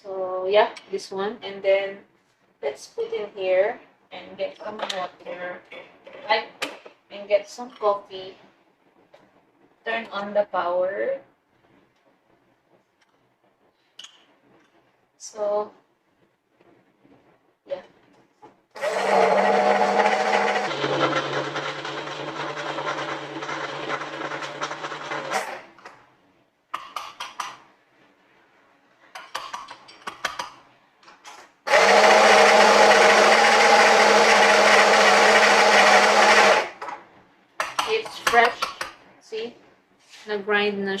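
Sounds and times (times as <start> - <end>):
coffee grinder grinding beans: 18.8 - 25.8, 31.7 - 36.9.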